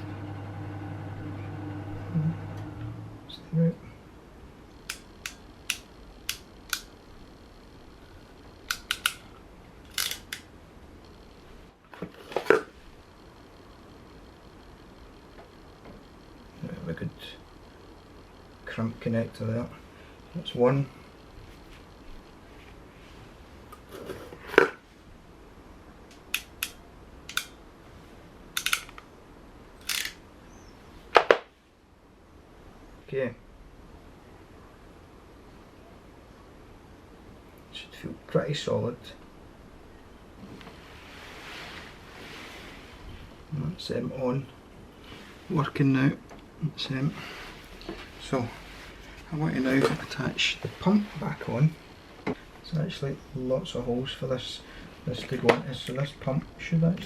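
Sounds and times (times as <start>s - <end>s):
crimping tool clicks: 4.8s - 6.9s, 8.7s - 9.2s, 26.1s - 27.6s, 28.6s - 29.0s
crimping tool clicking: 8.7s - 9.2s, 9.9s - 10.5s, 28.6s - 29.0s.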